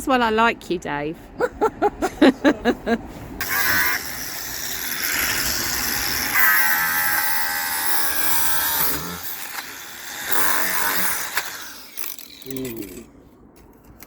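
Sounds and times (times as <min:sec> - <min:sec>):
power grinder on wood: 0:03.4 - 0:13.0.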